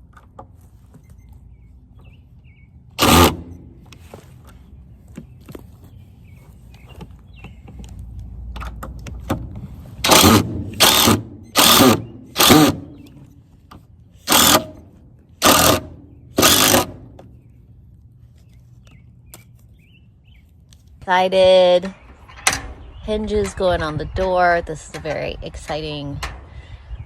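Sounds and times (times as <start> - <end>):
power drill driving screws: 3.0 - 3.6, 10.0 - 13.1, 14.2 - 14.8, 15.4 - 17.0.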